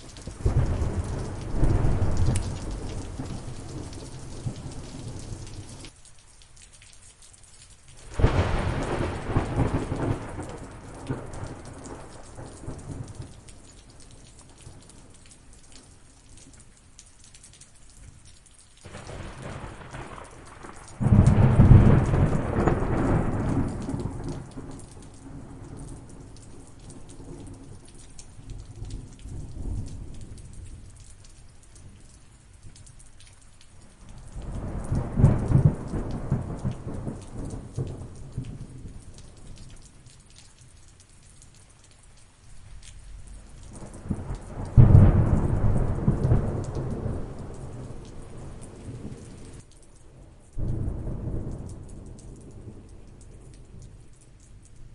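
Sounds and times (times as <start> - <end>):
steady rain: 0.0 - 54.9
thunder peals: 18.9 - 24.2.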